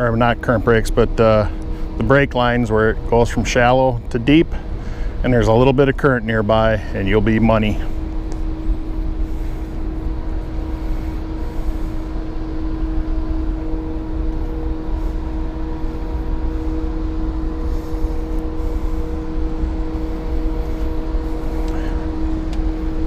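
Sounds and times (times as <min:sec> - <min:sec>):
low rumble: 0:00.0 - 0:23.0
mechanical hum of held tones: 0:00.0 - 0:23.0.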